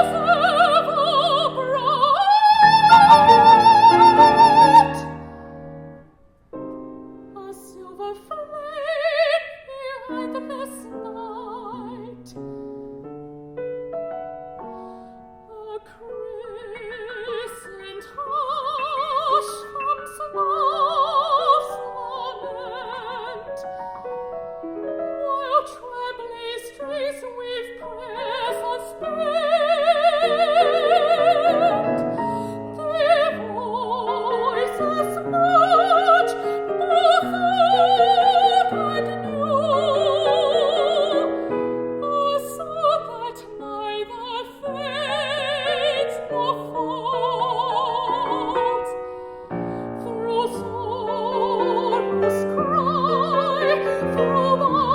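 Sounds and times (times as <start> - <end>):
person singing with vibrato: 0.0 - 5.2, 25.2 - 54.9
piano accompaniment: 0.0 - 9.2, 10.0 - 54.9.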